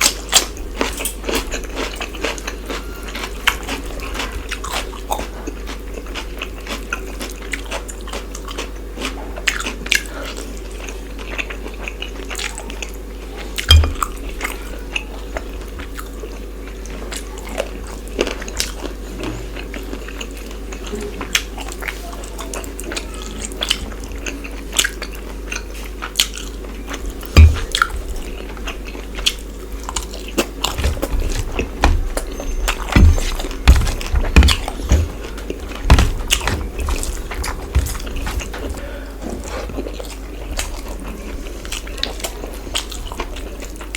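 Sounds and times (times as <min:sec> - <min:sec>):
person chewing food: 0:00.0 - 0:43.9
louder knocks: 0:33.0 - 0:38.6.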